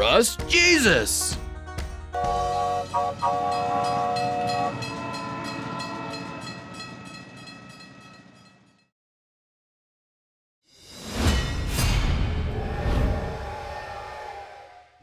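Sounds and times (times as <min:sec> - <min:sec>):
train chugging: 0:00.0 - 0:08.1
steam train whistle: 0:02.2 - 0:05.6, 0:13.4 - 0:15.0.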